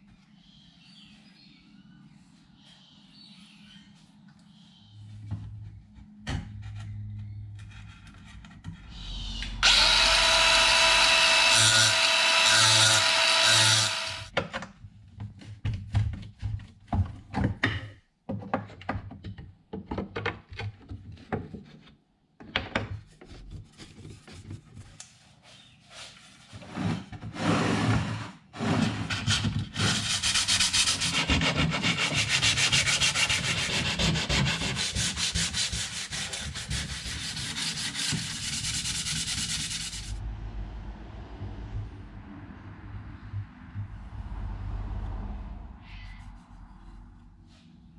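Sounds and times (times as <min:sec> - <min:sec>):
power tool running: 0:09.6 - 0:14.3
sanding wood: 0:29.2 - 0:40.2.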